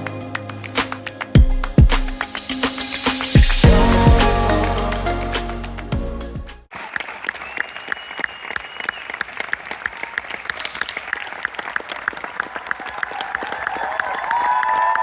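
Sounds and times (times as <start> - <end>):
music: 0.0 - 6.7
audience applauding: 6.7 - 15.0.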